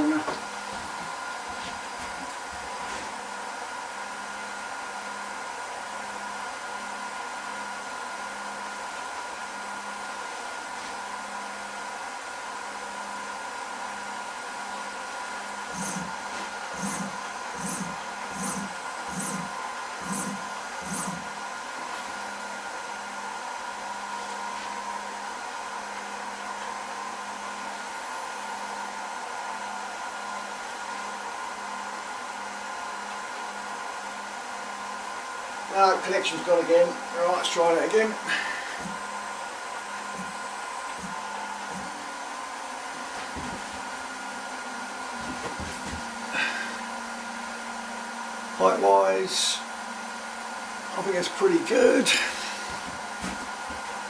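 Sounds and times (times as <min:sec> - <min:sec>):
cnc router whirring: 0:00.0 - 0:54.0
gantry buzzing moves: 0:15.7 - 0:21.3.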